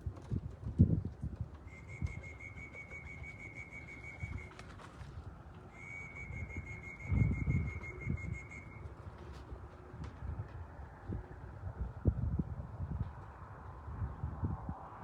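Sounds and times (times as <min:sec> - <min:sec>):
pigeon wings fluttering: 0:00.0 - 0:10.6
pulsing whistle-like tone: 0:01.7 - 0:04.6, 0:05.7 - 0:08.9.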